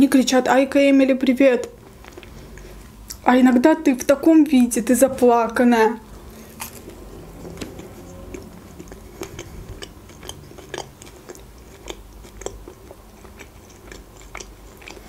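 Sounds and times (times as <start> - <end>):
chewing mouth clicks: 6.3 - 15.0.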